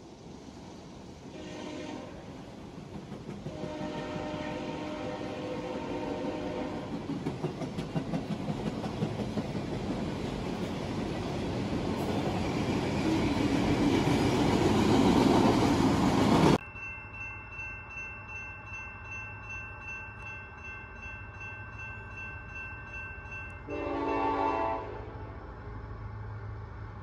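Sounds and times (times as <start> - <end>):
freight cars rumbling on rails: 0.0 - 16.6
train chime horn: 1.3 - 2.2, 3.5 - 7.0, 23.4 - 25.5.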